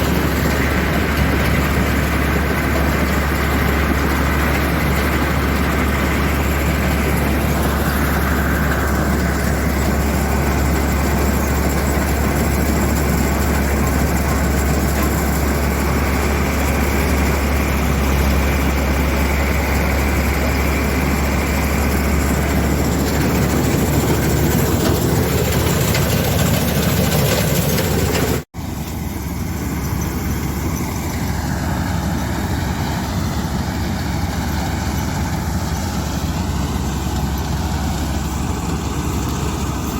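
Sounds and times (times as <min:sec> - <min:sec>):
diesel engine humming: 0:00.0 - 0:39.9.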